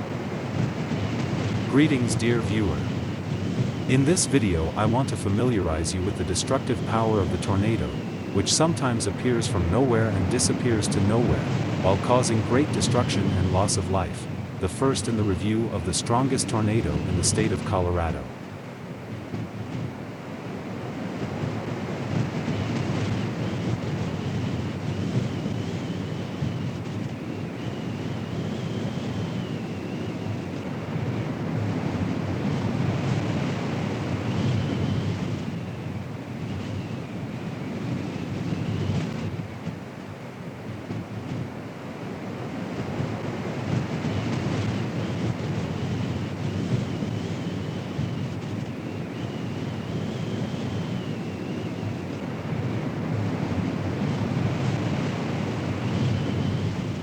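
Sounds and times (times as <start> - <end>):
faint high wavering whine: 0.0 - 57.0
wind buffeting microphone: 0.0 - 57.0.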